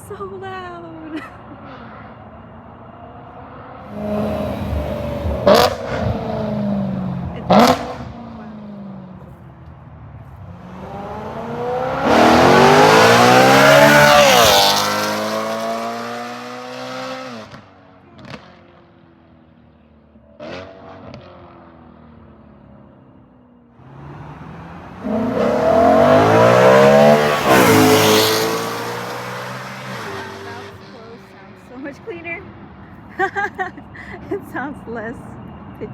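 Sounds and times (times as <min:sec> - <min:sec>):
car engine revving hard: 0:03.8 - 0:08.2, 0:10.7 - 0:17.6, 0:23.8 - 0:31.0.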